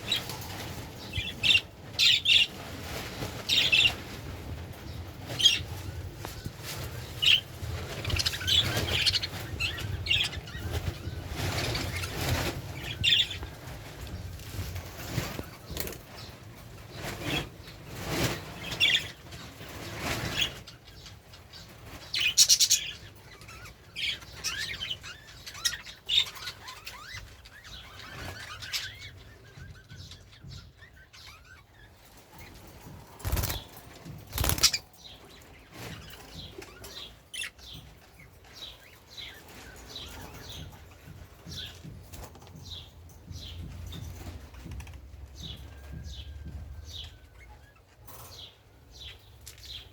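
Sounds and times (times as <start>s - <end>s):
budgerigars chirping: 7.0s - 13.5s, 21.6s - 31.6s, 34.3s - 37.8s
budgerigars flapping wings: 32.5s - 34.9s.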